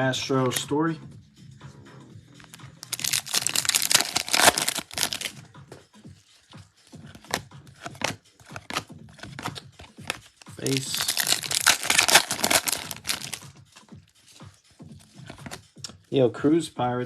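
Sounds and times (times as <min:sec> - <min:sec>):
wrapper tearing and crinkling: 0:02.8 - 0:05.4, 0:10.6 - 0:13.4
cards handled with clicks: 0:07.1 - 0:13.4, 0:15.1 - 0:15.6.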